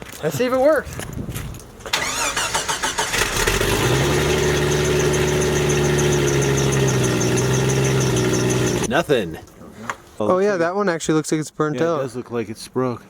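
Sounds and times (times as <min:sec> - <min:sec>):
car engine cranking: 0:01.9 - 0:09.0
car engine idling: 0:03.1 - 0:08.9.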